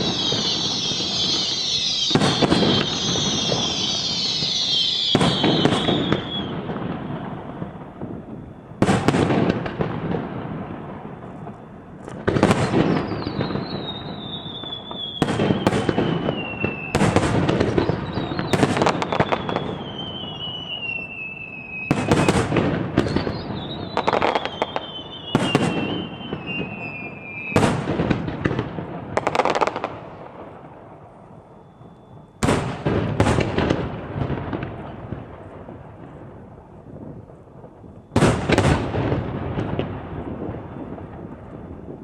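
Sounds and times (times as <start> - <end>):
high descending whistle: 0.0 - 6.6, 12.9 - 17.0, 17.8 - 22.4, 23.1 - 27.6
fireworks booming: 0.0 - 42.0
fireworks crackle: 0.0 - 42.0.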